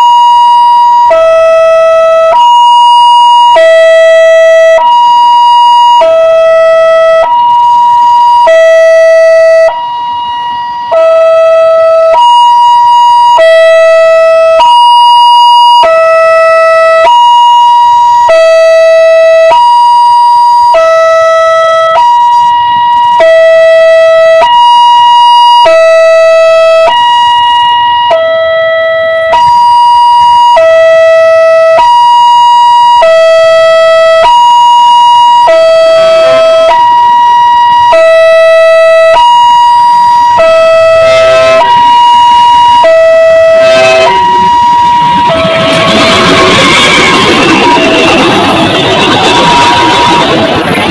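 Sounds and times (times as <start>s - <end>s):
two-tone hi-lo siren: 0.0s - 50.9s.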